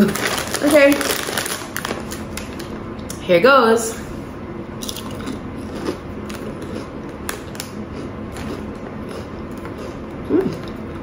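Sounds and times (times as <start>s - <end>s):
chewing crunchy snack: 4.8s - 11.0s.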